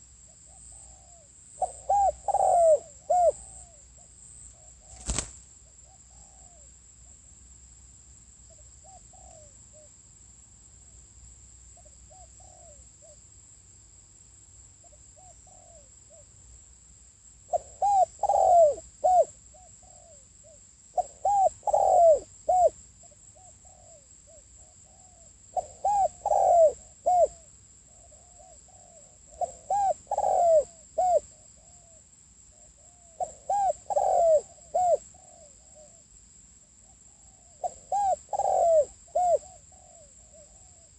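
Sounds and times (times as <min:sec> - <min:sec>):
dove cooing: 0:00.0 - 0:03.8, 0:08.8 - 0:09.9, 0:12.1 - 0:13.2, 0:15.2 - 0:16.2, 0:17.5 - 0:22.8, 0:23.4 - 0:31.9, 0:32.8 - 0:36.0, 0:37.1 - 0:40.9.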